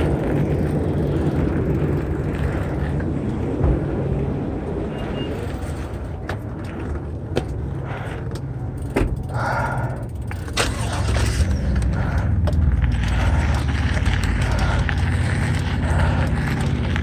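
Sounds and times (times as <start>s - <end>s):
bike clicks and rattles: 0.0s - 3.9s, 5.0s - 17.0s
wind rumble on microphone: 0.0s - 7.8s.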